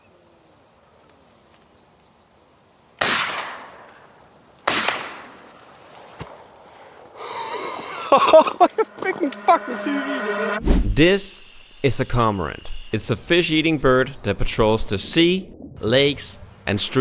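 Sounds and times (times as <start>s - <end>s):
shotgun shots: 3.0s - 3.9s, 4.6s - 5.4s.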